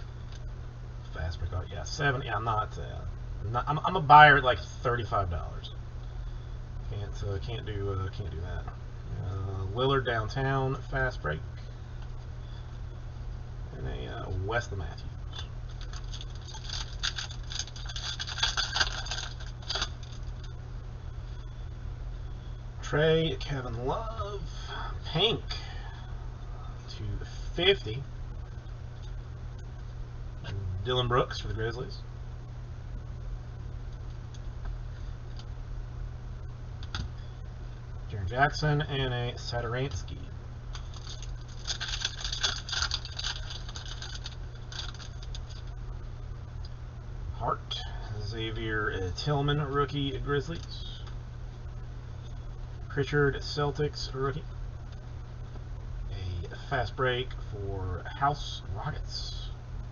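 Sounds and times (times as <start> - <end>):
steady low hum: 0.0 - 59.9
cards rustling and clicking: 15.7 - 20.5, 40.7 - 45.7.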